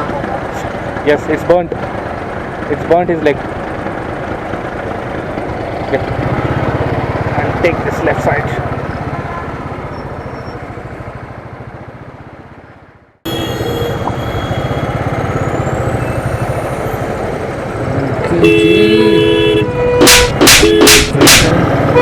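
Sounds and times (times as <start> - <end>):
motorcycle engine running: 0.0 - 22.0
road noise in traffic: 0.0 - 22.0
vehicle horns honking: 13.3 - 15.1, 18.2 - 22.0.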